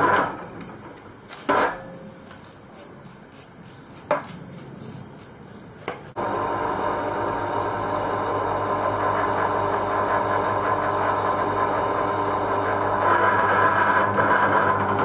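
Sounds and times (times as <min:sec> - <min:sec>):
power tool motor humming: 0:06.2 - 0:15.0.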